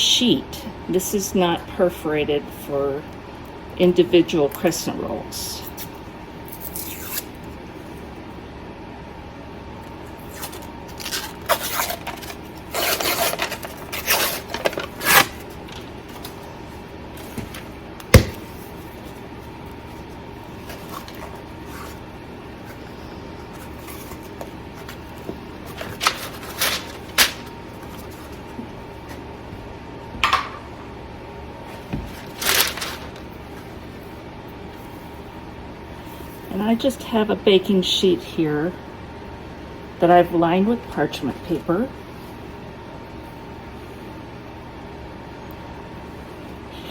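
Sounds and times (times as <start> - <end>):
paper wrapper tearing: 10.2 - 16.3, 25.7 - 28.0, 32.2 - 33.3
packaging rustling: 10.2 - 16.5, 20.5 - 22.0, 22.6 - 28.5, 32.1 - 33.3.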